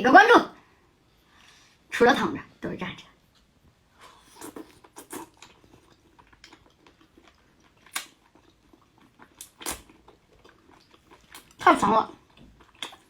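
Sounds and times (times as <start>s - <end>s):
person chewing food: 4.0s - 13.0s.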